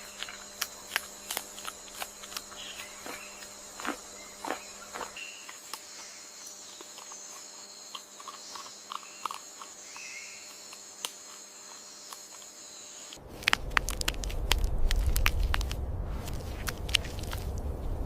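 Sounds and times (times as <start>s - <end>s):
insects trilling: 0.0s - 15.8s
bird chirps: 4.1s - 10.6s.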